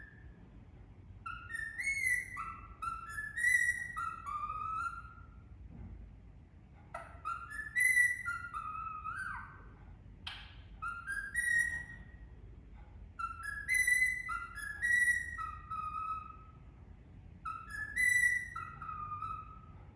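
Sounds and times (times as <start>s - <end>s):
parakeet harsh squawk: 1.2s - 5.4s, 7.0s - 9.7s, 13.2s - 16.6s, 17.4s - 19.8s
parakeet whistling a tune: 1.2s - 5.4s, 7.0s - 12.2s, 13.2s - 16.6s, 17.4s - 19.9s.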